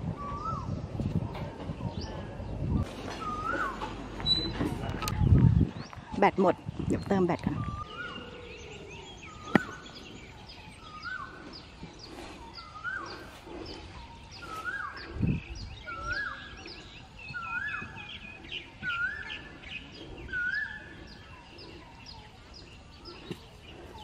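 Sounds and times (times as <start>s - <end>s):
birds chirping: 0.0s - 24.0s
bird calling rising note: 2.8s - 5.2s.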